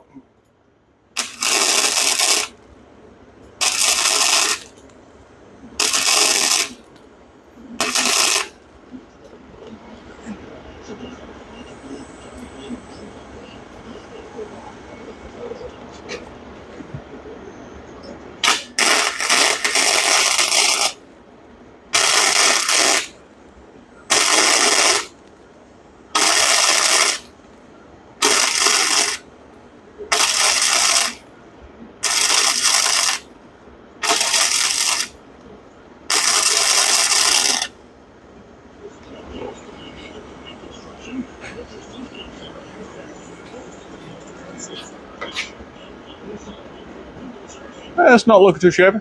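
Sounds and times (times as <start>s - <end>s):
arc welding hissing: 1.2s - 2.6s, 3.6s - 4.9s, 5.7s - 7.0s, 7.7s - 9.0s, 18.4s - 21.0s, 21.9s - 23.2s, 24.1s - 25.3s, 26.1s - 27.3s, 28.2s - 29.2s, 30.0s - 31.2s, 32.0s - 33.3s, 34.0s - 35.2s, 36.1s - 37.8s.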